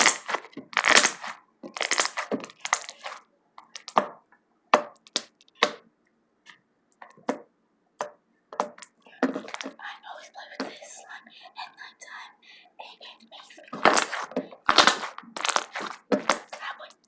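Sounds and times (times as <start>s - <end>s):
slime crackling and popping: 0.0s - 4.0s, 5.0s - 5.6s, 13.8s - 16.6s.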